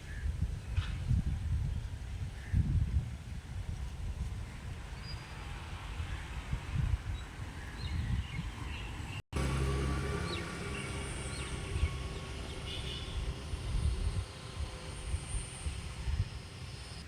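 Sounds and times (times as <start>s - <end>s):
small birds chirping: 10.2s - 17.0s
steady low rumble: 10.7s - 17.0s.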